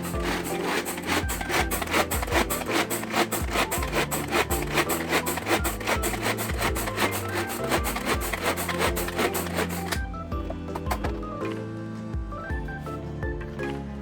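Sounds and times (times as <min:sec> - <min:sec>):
knife cutting on wooden board: 0:00.0 - 0:11.2.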